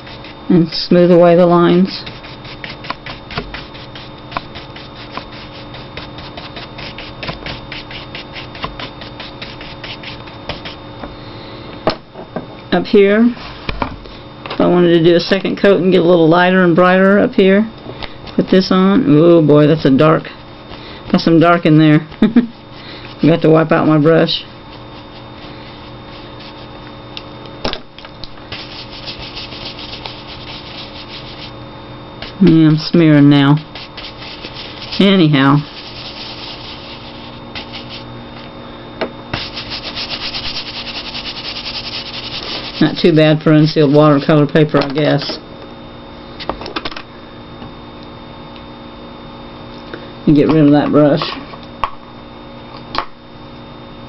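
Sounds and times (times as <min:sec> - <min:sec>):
paintbrush scrubbing on paper: 0:01.6 - 0:10.8, 0:24.7 - 0:26.7, 0:28.5 - 0:31.6, 0:33.7 - 0:38.1, 0:39.4 - 0:44.4.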